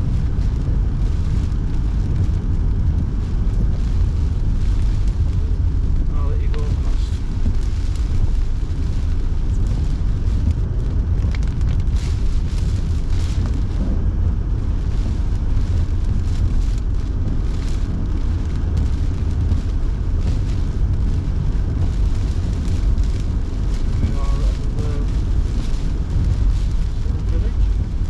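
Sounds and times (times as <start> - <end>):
road and engine rumble: 0.0 - 28.0.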